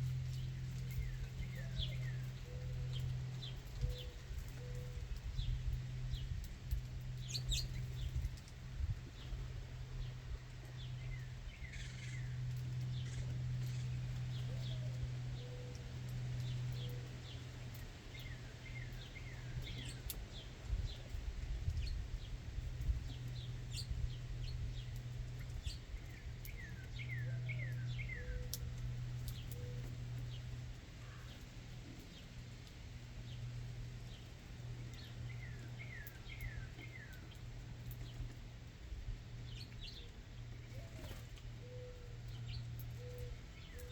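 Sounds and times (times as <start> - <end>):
songbirds chirping: 0.0 - 43.9
steady low hum: 0.0 - 43.9.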